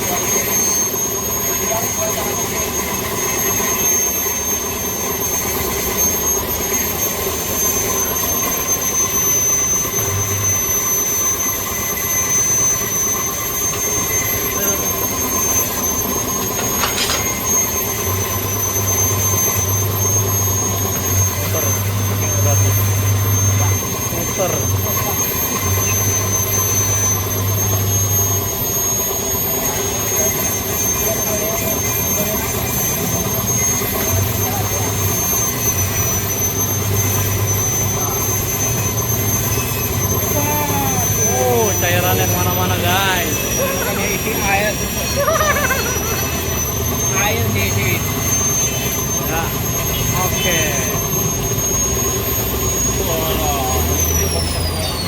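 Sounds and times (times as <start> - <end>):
workshop machinery whine: 0.0 - 55.0.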